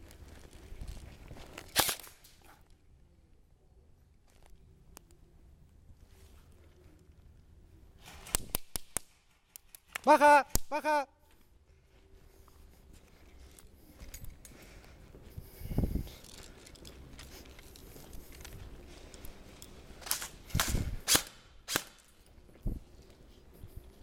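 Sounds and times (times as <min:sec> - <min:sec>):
airsoft gunshots: 0:20.0 - 0:22.0.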